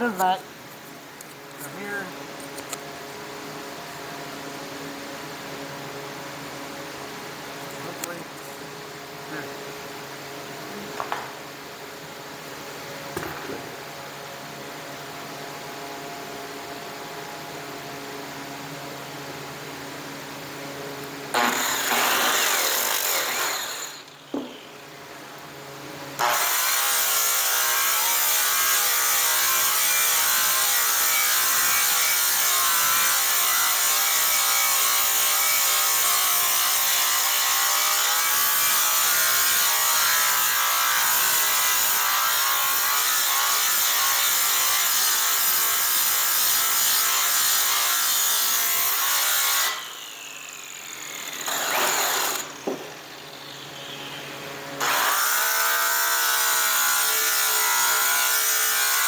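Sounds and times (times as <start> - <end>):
electric polisher running: 21.4 - 24.6.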